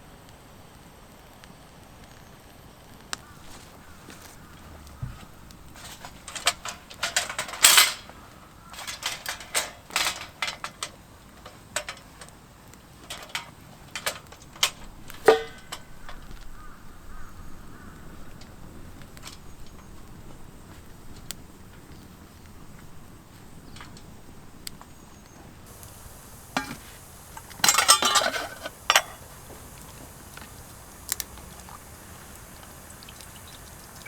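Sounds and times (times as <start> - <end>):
sharp clicks and knocks: 25.7 - 34.0.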